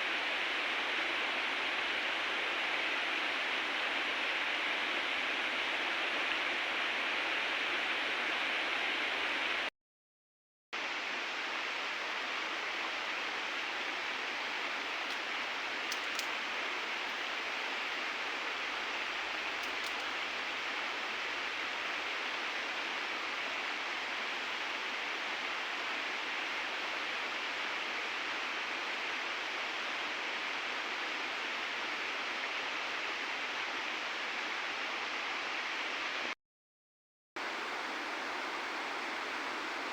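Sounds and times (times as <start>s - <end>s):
river water rushing: 10.8s - 34.2s, 37.4s - 39.9s.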